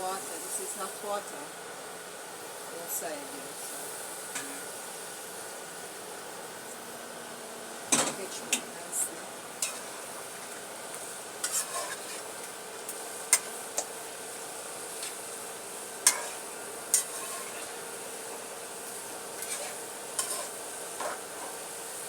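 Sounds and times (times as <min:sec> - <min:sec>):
pot hissing on stove: 0:00.0 - 0:22.0.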